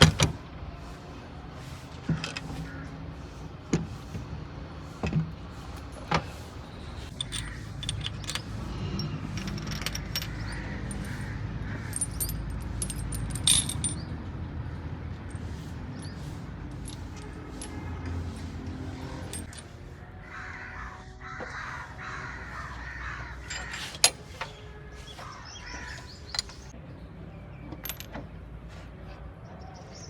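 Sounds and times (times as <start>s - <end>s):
metal tools clinking and knocking: 7.0s - 14.2s, 15.2s - 19.8s, 23.4s - 24.6s, 25.7s - 26.7s, 27.7s - 28.3s.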